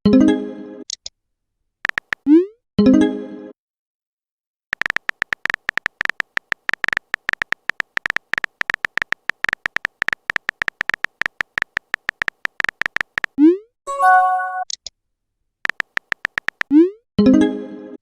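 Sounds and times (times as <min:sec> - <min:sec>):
phone keyboard typing beeps: 0:01.8 - 0:02.3, 0:04.7 - 0:14.8, 0:15.7 - 0:16.7.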